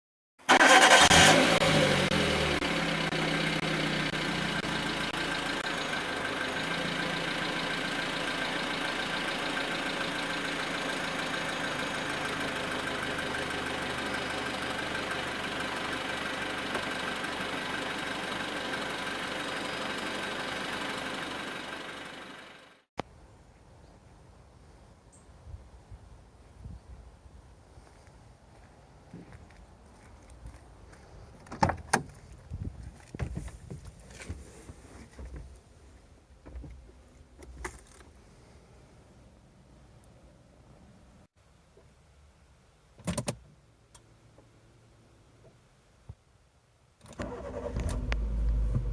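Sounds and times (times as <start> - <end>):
car engine idling: 0.6 - 22.8, 47.2 - 48.9.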